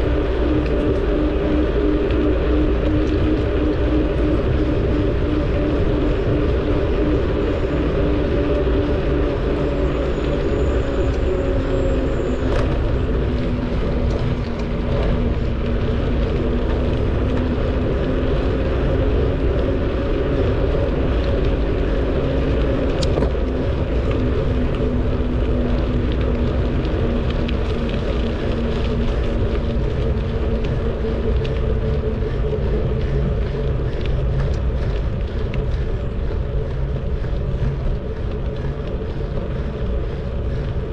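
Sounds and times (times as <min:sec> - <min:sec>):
bicycle tyre and drivetrain noise: 0:00.0 - 0:40.9
low hum: 0:00.0 - 0:40.9
wind rumble on microphone: 0:00.0 - 0:40.9.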